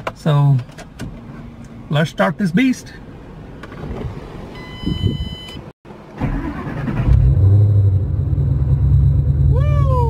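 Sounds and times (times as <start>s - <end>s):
car engine cranking and starting: 5.9s - 9.5s.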